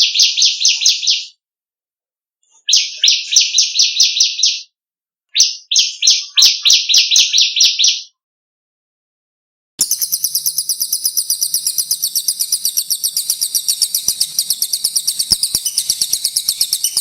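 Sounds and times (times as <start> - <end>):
songbird buzzy chirps: 9.8 - 17.0.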